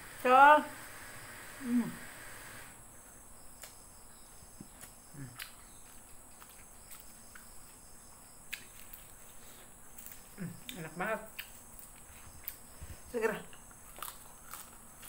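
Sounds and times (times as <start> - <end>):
chewing with mouth clicks: 4.6 - 7.8, 8.5 - 12.7, 13.5 - 15.0.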